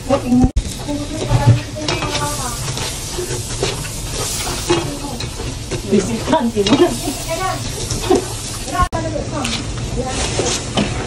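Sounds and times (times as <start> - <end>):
garlic sizzling in a frying pan: 0.0 - 11.0
spatula scraping a pan: 0.7 - 8.8.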